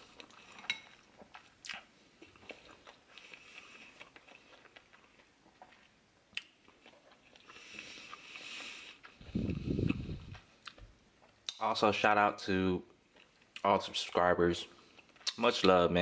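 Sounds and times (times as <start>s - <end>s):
person chewing noodles: 0.0s - 11.6s, 13.0s - 14.2s, 14.8s - 15.4s
mouth clicks and smacks: 4.0s - 11.6s.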